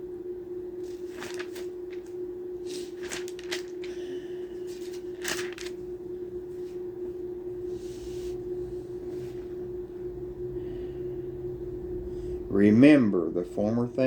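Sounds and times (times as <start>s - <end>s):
low hum: 0.0s - 14.0s
thin pages turning and rustling: 0.8s - 4.0s, 4.6s - 5.9s.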